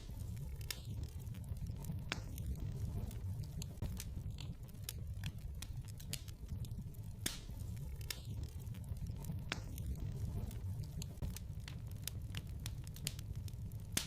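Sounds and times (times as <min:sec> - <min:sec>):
fire pops and snaps: 0:00.0 - 0:14.0
fire rumbling: 0:00.0 - 0:14.0.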